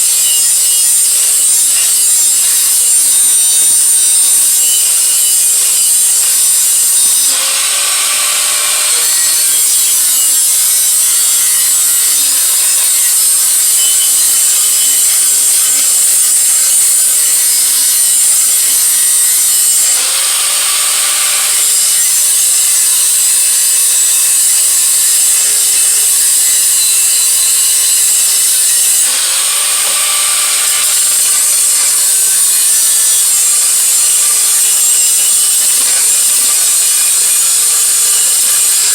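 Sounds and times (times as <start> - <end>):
power grinder on metal: 0.0 - 38.9.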